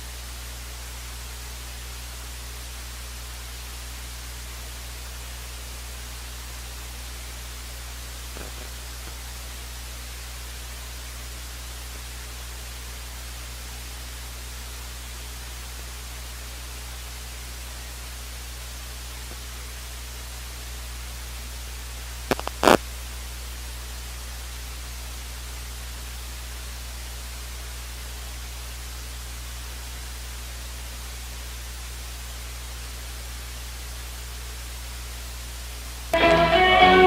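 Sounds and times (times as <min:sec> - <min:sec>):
steady hiss: 0:00.0 - 0:37.0
electrical hum: 0:02.6 - 0:10.4, 0:21.5 - 0:23.0.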